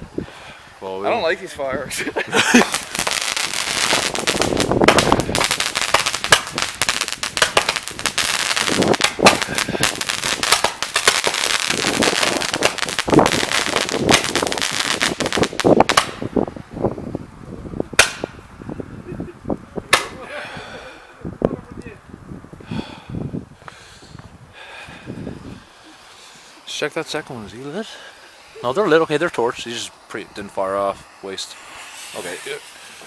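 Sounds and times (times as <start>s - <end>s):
fireworks crackling: 0.8s - 16.6s, 25.4s - 33.0s
loud firework bangs: 2.5s - 16.4s, 17.9s - 18.5s.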